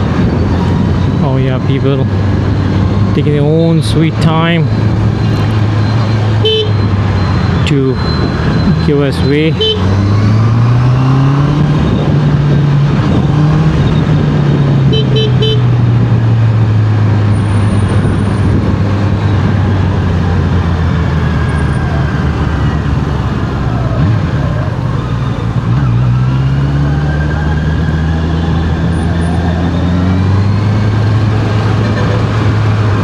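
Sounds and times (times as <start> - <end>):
wind rushing over microphone: 0.0 - 25.8
horn tooting: 6.4 - 6.9, 9.2 - 10.0, 14.9 - 15.8.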